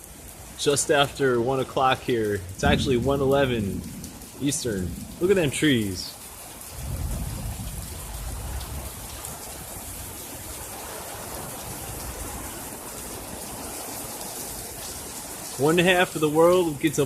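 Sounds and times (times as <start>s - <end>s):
steady rain falling: 0.0s - 17.0s
low rumble: 2.4s - 5.6s.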